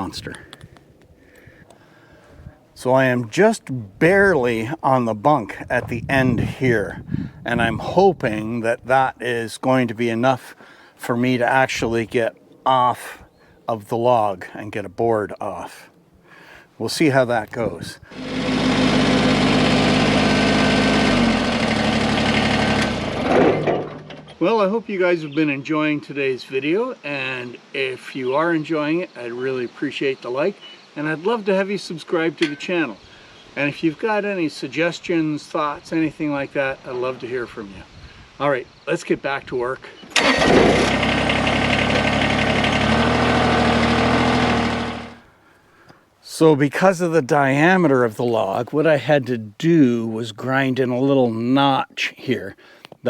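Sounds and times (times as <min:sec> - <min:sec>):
engine running steadily: 0:18.1 - 0:23.4, 0:40.4 - 0:45.2.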